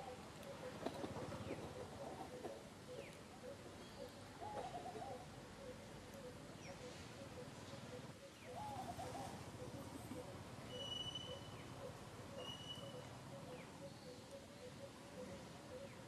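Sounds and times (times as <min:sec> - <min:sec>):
short wavering bird calls: 0:01.7 - 0:16.0
low bird hooting: 0:07.2 - 0:16.0.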